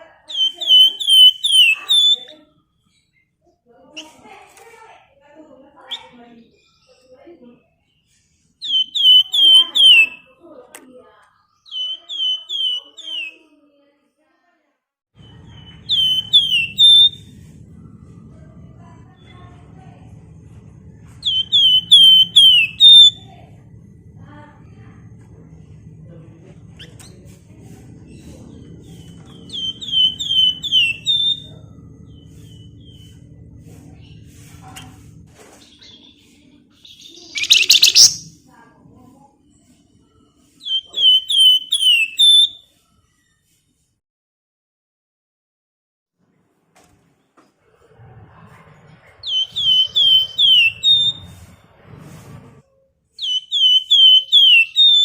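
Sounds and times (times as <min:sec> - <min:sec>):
bird harsh chatter: 0:00.3 - 0:02.4, 0:08.6 - 0:10.2, 0:11.6 - 0:13.4, 0:15.2 - 0:17.4, 0:21.2 - 0:23.3, 0:26.8 - 0:38.4, 0:39.6 - 0:42.6, 0:49.2 - 0:51.5, 0:53.2 - 0:55.0
songbird whistling: 0:00.3 - 0:02.4, 0:08.6 - 0:10.3, 0:11.6 - 0:13.4, 0:15.2 - 0:17.3, 0:21.2 - 0:23.4, 0:28.8 - 0:33.3, 0:35.7 - 0:38.3, 0:40.6 - 0:42.6, 0:49.2 - 0:51.4, 0:53.2 - 0:55.0
low background hum: 0:15.2 - 0:43.0, 0:46.8 - 0:55.0.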